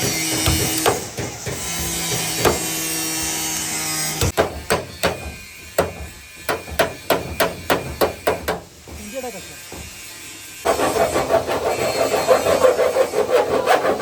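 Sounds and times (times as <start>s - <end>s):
hammer striking car body metal: 0.0s - 3.0s, 4.2s - 9.1s.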